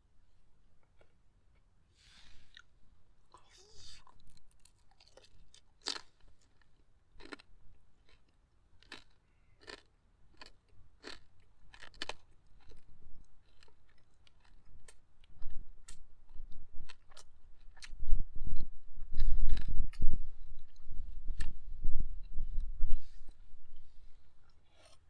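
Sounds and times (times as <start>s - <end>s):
chewing crispy pork: 3.3s - 21.6s.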